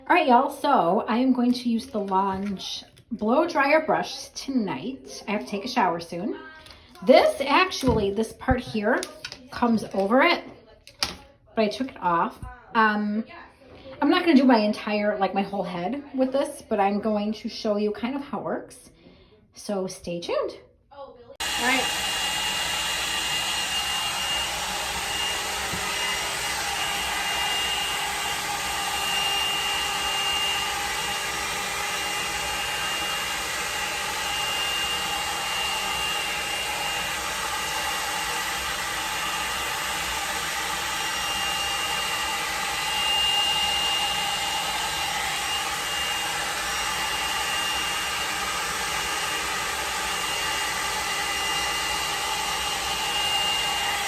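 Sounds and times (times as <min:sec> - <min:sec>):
blow dryer fan whine: 0:21.4 - 0:54.0.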